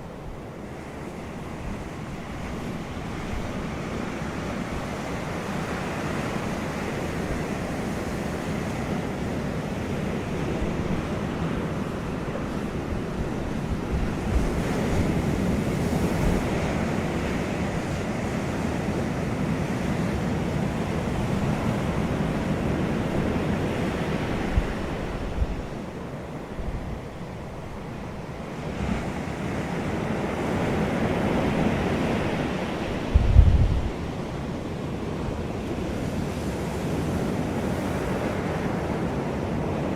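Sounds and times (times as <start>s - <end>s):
wind gusting: 30.8s - 35.5s
wind thumps on microphone: 33.0s - 34.2s.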